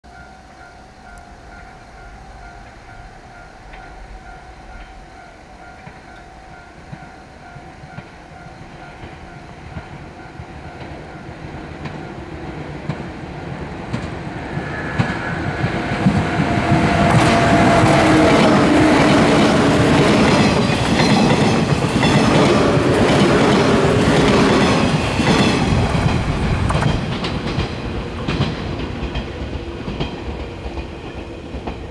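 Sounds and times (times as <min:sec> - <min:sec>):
electric train running past: 0:00.1 - 0:31.9
wheels clacking over rail joints: 0:06.9 - 0:31.9
whine sliding down in pitch: 0:13.9 - 0:19.7.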